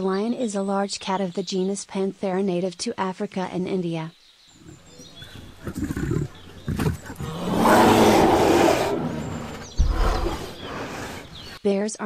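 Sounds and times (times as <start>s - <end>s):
large animal roaring: 4.7s - 11.3s
low thump: 9.8s - 10.5s.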